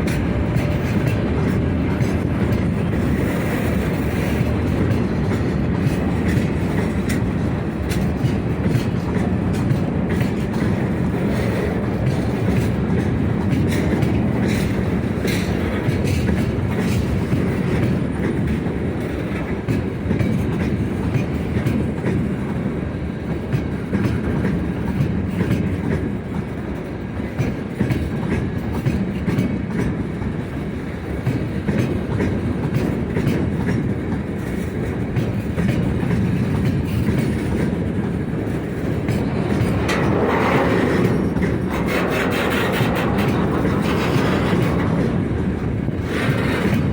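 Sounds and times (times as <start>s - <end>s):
wheels clicking over rail joints: 0.0s - 30.4s, 31.0s - 46.9s
train wagons rumbling: 0.0s - 46.9s.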